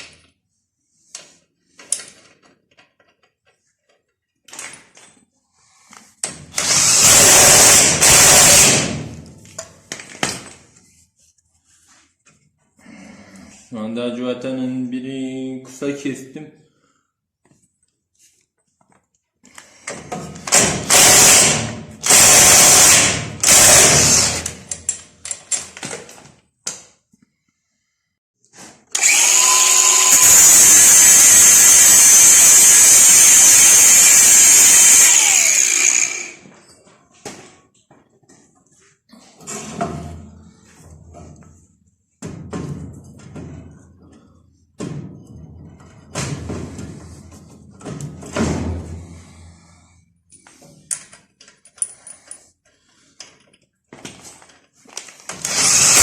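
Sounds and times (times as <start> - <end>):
tools clicking and knocking: 1.1 - 5.3, 24.3 - 27.1, 50.3 - 56.0
power tool on metal: 6.6 - 9.0, 20.5 - 24.7, 28.9 - 36.4, 55.3 - 56.0.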